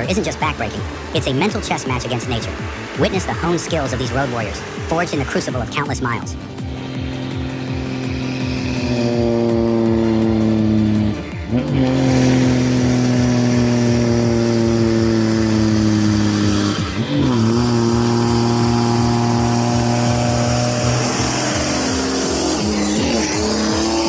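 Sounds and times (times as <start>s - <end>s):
heavy truck engine labouring: 0.0s - 24.0s.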